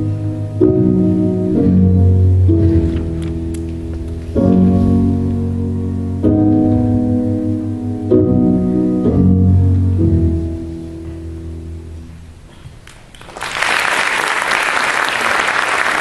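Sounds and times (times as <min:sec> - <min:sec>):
piano and strings chords: 0:00.0 - 0:12.5
audience applause: 0:12.8 - 0:16.0.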